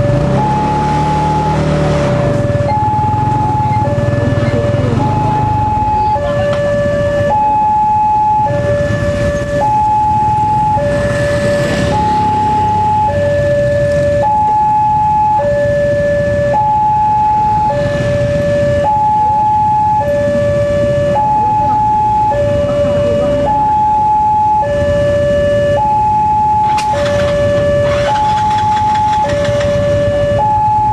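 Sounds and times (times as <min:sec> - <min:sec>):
level crossing two-tone alarm: 0:00.0 - 0:01.7, 0:02.5 - 0:30.9
motorcycle engines idling: 0:01.6 - 0:06.8, 0:26.6 - 0:30.4.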